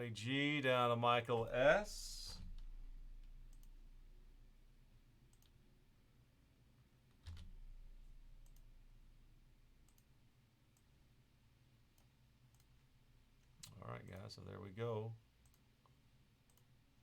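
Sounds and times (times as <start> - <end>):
faint mouse clicks: 2.4 - 3.8, 5.3 - 5.6, 8.4 - 8.7, 9.8 - 10.1, 11.9 - 12.8, 13.4 - 14.4, 15.4 - 16.8.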